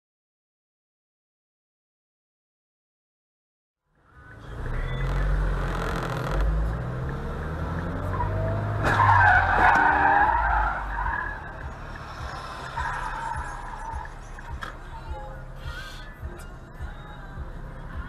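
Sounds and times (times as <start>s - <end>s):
car driving: 3.9s - 18.0s
tyres squealing in a skid: 4.4s - 6.5s, 8.0s - 14.7s.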